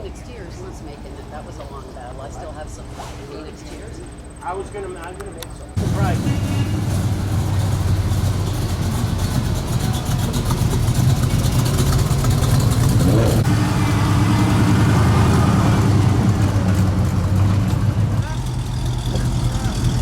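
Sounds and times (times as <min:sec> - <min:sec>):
car engine idling: 0:04.1 - 0:20.0.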